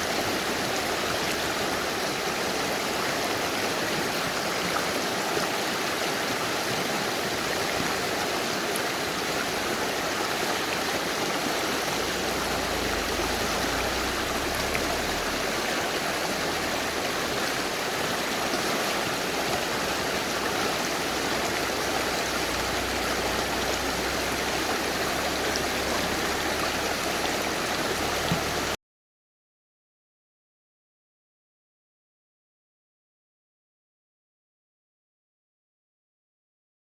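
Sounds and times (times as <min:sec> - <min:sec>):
river flowing: 0:00.0 - 0:28.8
low rumble: 0:11.3 - 0:17.6.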